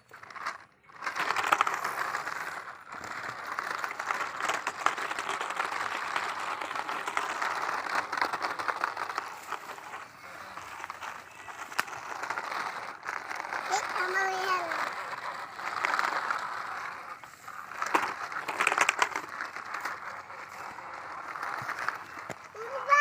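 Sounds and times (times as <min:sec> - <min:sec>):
toy trucks rattling over rough ground: 0:00.0 - 0:23.0.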